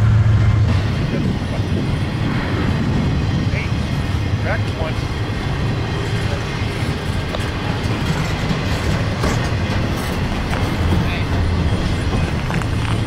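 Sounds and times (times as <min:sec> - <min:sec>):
train wheels rumbling on rail: 0:00.0 - 0:13.0
wheels clicking over rail joints: 0:05.7 - 0:13.0.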